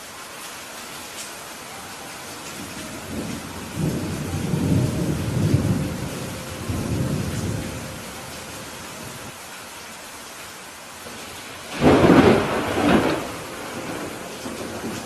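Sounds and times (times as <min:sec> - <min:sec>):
heavy rain: 0:00.0 - 0:15.0
thunder rumbling: 0:01.9 - 0:09.3, 0:11.1 - 0:15.0.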